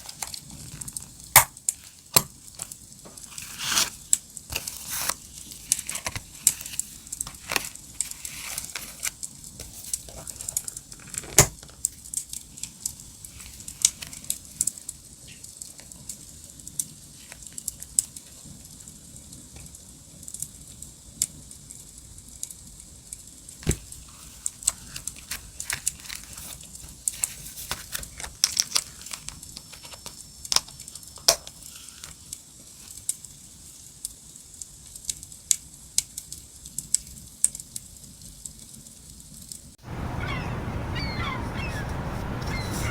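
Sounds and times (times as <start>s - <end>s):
paper rustling and tearing: 1.8s - 11.5s, 23.6s - 30.2s.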